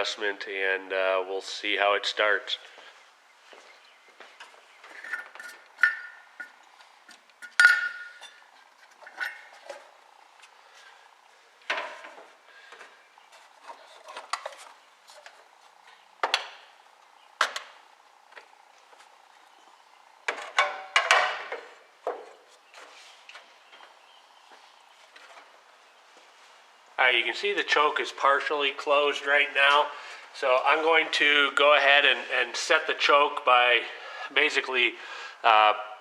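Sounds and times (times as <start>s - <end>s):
metal parts clanking: 4.9s - 6.6s, 7.4s - 9.9s.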